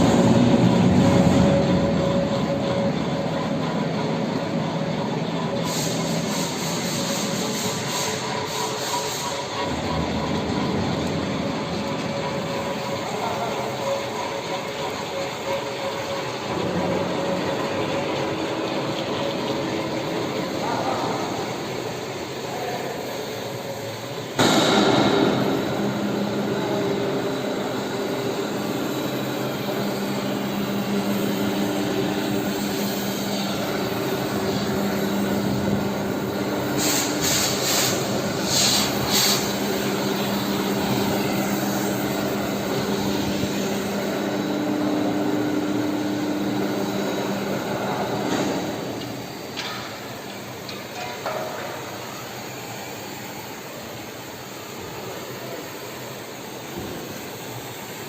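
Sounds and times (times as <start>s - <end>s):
workshop machinery humming: 0.0s - 58.0s
short hissing bursts: 5.6s - 9.5s, 36.8s - 39.6s.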